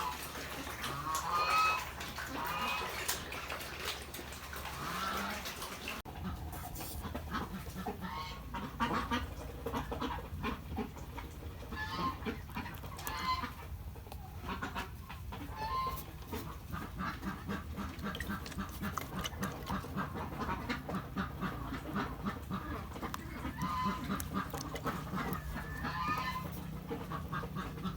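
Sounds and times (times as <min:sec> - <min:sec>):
poultry calling: 0:07.3 - 0:27.9.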